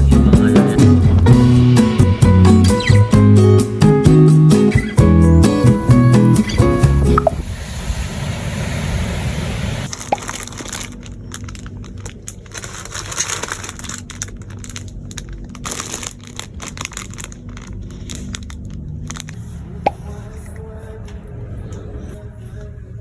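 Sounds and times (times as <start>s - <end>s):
steady hiss: 5.5s - 9.9s
crinkling and crunching handling: 9.9s - 19.4s.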